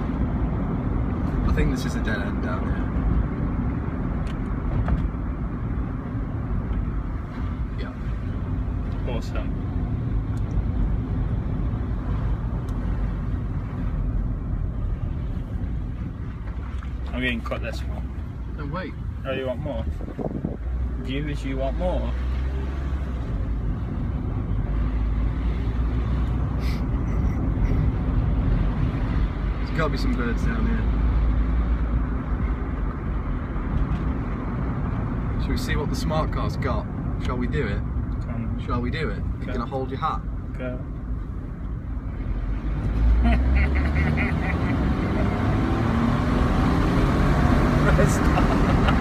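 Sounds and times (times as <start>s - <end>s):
car engine and road noise: 0.0s - 49.0s
car engine accelerating: 42.0s - 49.0s.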